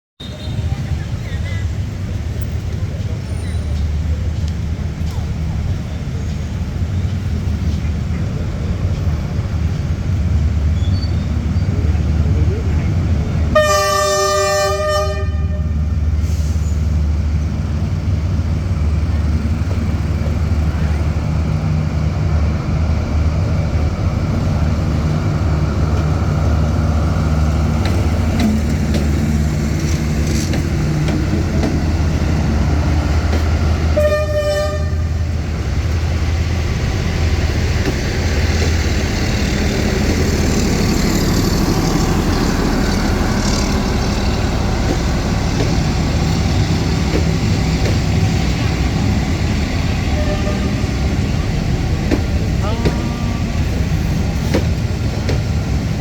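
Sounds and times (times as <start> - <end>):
train rumbling past: 0.2 - 56.0
train horn toot: 13.5 - 15.8, 33.9 - 35.2, 50.1 - 51.0.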